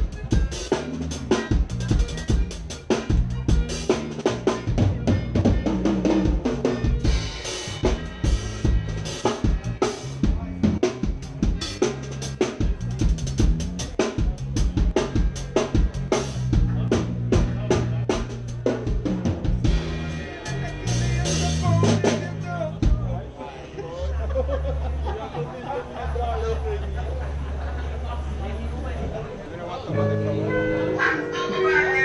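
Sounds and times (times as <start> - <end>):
drum kit beat: 0.0 - 23.2
bass line: 0.0 - 32.0.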